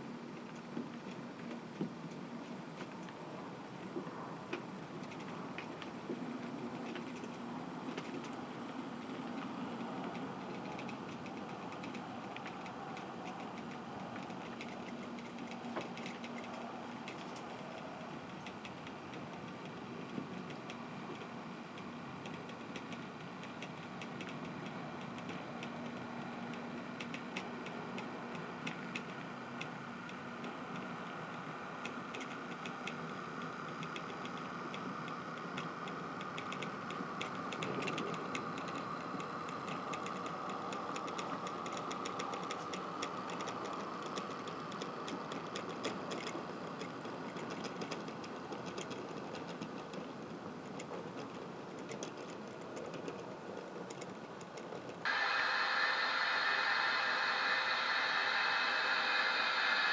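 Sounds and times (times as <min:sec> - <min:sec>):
wheels ticking over rail joints: 0:00.4 - 0:55.1
loud whirring: 0:55.1 - 0:59.9
small electric motor whirring: 0:55.1 - 0:59.9.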